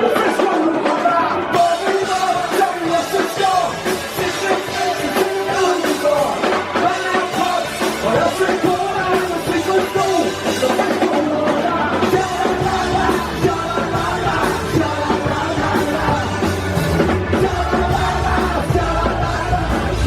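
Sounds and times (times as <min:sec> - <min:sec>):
drum kit: 0:00.0 - 0:20.0
person singing: 0:00.0 - 0:20.0
punk rock band playing: 0:00.0 - 0:20.0.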